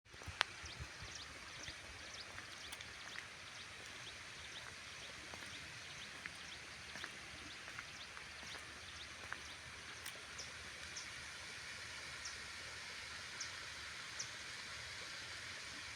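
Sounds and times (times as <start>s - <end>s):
running water: 0.1s - 15.9s
water droplets plinking: 0.2s - 10.2s.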